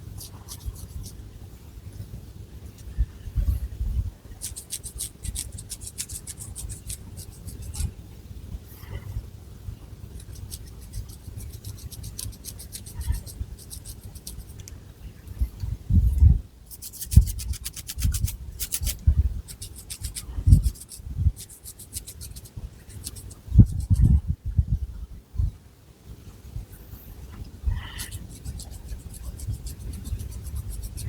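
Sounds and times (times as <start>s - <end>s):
fingernails scratching through hair: 0.2s - 1.2s, 4.4s - 7.9s, 10.2s - 14.7s, 16.7s - 24.2s, 28.0s - 31.0s.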